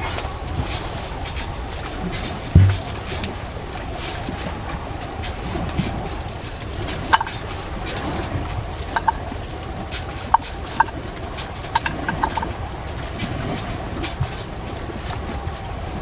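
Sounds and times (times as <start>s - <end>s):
light metallic clinks: 10.3s - 12.5s.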